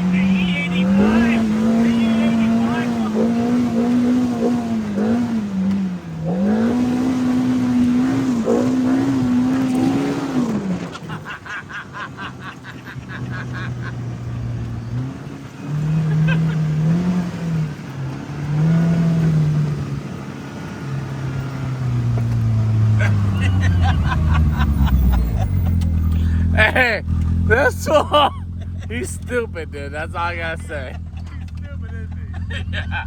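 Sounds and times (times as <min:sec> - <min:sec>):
lower engine revving: 0:00.0 - 0:33.0
off-road engine revving high: 0:00.0 - 0:33.0.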